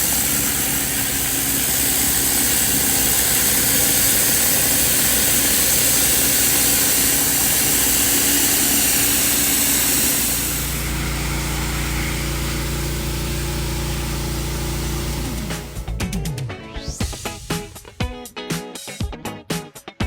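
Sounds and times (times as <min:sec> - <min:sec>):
water jet hissing: 0:00.0 - 0:15.9
pressure washer engine running: 0:00.0 - 0:16.1
steady humming: 0:00.0 - 0:16.3.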